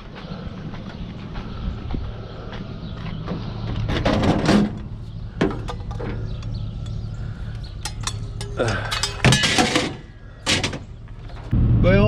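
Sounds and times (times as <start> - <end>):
low engine hum: 0.0 - 12.0
rattling clatter: 7.8 - 11.5.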